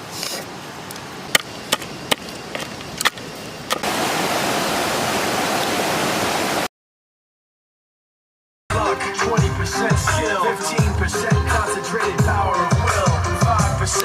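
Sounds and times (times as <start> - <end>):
rushing river water: 3.4 - 6.7.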